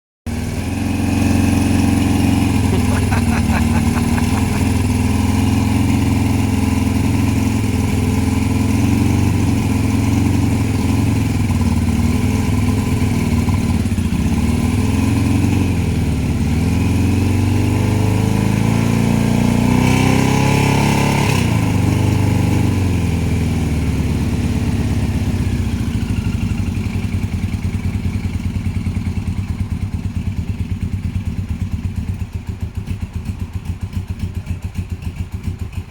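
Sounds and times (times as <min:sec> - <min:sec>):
motorcycle engine idling: 0:02.0 - 0:14.6, 0:23.5 - 0:35.9.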